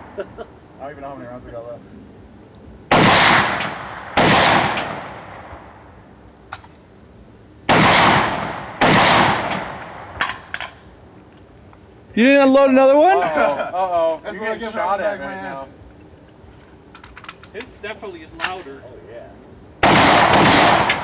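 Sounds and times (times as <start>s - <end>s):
rifle shots with long echo: 2.9s - 5.9s, 7.7s - 10.8s, 19.8s - 21.0s.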